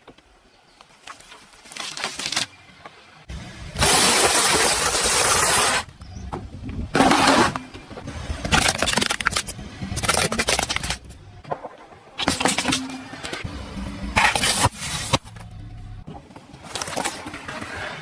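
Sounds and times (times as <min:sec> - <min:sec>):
loud hiss: 0:03.3 - 0:06.0
car engine rumbling: 0:08.0 - 0:16.1
crackling noises: 0:08.0 - 0:18.0.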